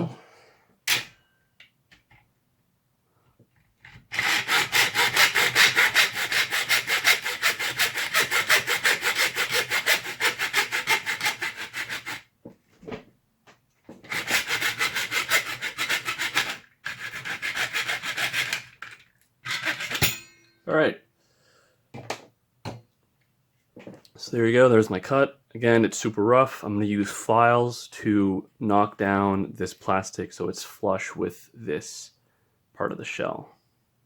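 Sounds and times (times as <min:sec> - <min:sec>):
hacksaw cutting plastic: 0:03.8 - 0:12.3, 0:14.0 - 0:20.2.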